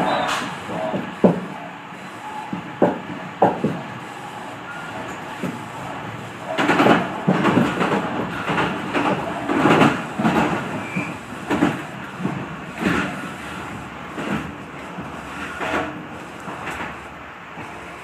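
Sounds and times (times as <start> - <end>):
train rumbling: 0.0 - 18.0
wheel clatter over rail joints: 4.6 - 18.0.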